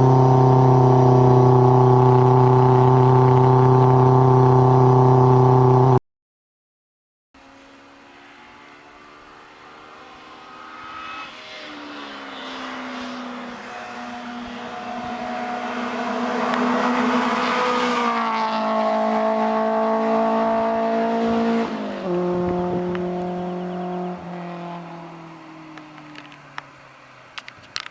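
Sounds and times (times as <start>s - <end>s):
sports car driving past: 7.5s - 27.2s.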